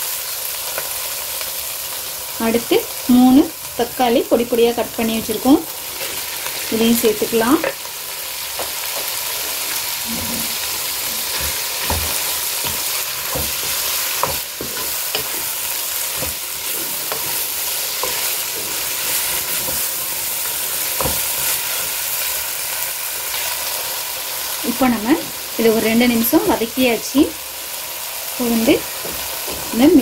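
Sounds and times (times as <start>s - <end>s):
vegetables sizzling in oil: 0.0s - 30.0s
spatula scraping and knocking pan: 8.5s - 22.0s.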